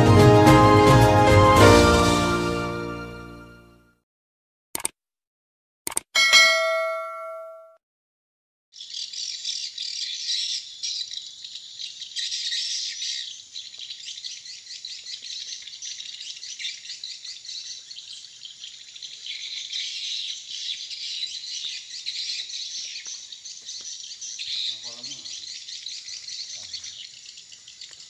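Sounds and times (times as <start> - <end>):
birds twittering: 8.8 - 28.0.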